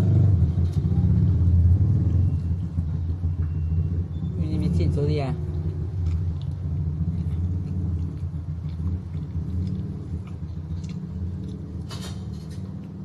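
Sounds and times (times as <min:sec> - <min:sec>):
steady low hum: 0:00.0 - 0:13.0
chewing clicks: 0:05.4 - 0:13.0.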